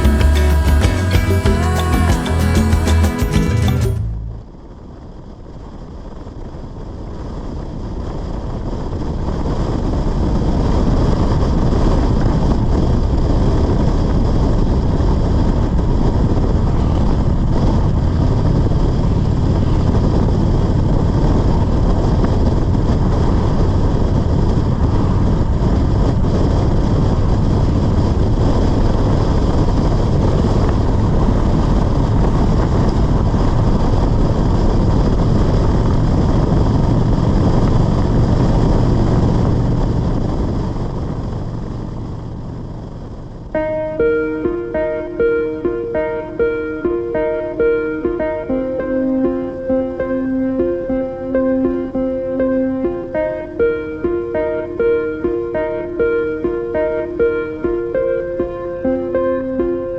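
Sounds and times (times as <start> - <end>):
wind rush on microphone: 4.2 - 59.9
motorcycle engine running: 12.4 - 43.5.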